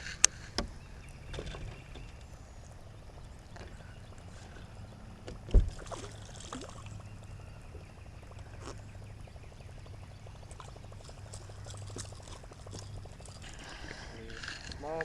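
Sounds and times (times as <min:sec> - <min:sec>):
low steady hum: 0:00.0 - 0:15.0
water splashing and trickling: 0:02.6 - 0:09.0, 0:09.8 - 0:15.0.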